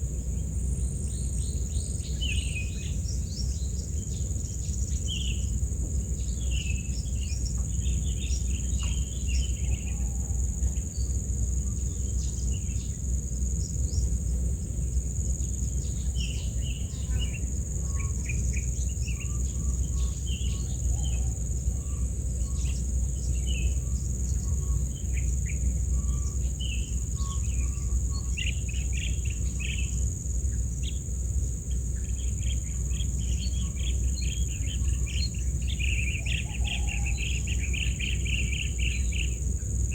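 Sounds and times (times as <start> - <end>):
high-pitched insect drone: 15.2 - 39.9.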